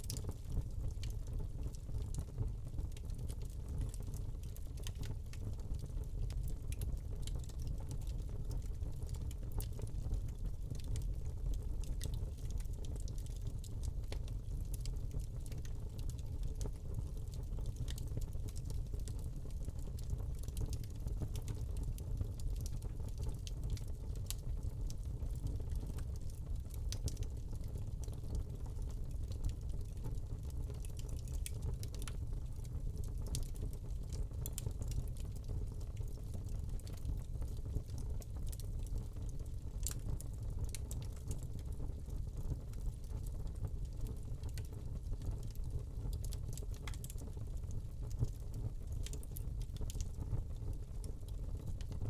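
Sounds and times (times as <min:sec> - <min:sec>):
log crackling and popping: 0:00.0 - 0:52.0
rumble of flames: 0:00.0 - 0:52.0.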